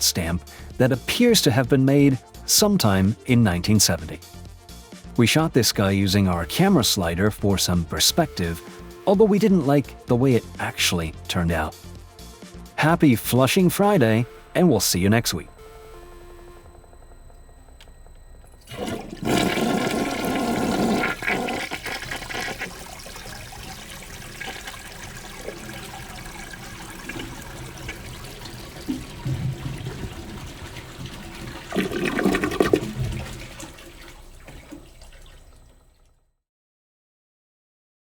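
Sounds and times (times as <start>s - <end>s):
toilet flushing: 0.0s - 10.8s, 18.6s - 36.2s.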